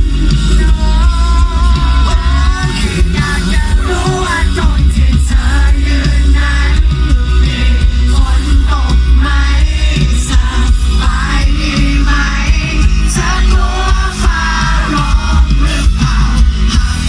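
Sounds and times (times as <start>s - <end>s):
live pop-rock band playing: 0.0s - 17.0s
person singing: 0.0s - 17.0s.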